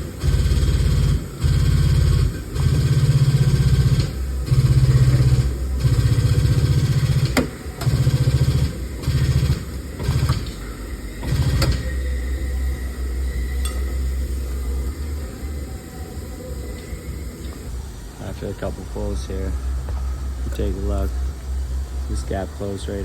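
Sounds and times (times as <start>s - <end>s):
hydraulic pump bursts: 0.0s - 12.5s.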